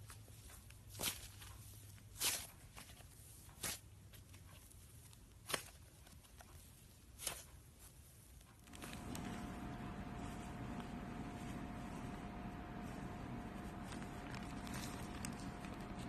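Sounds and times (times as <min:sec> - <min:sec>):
faint high hum: 0:08.6 - 0:16.0
steady hiss: 0:08.7 - 0:16.0.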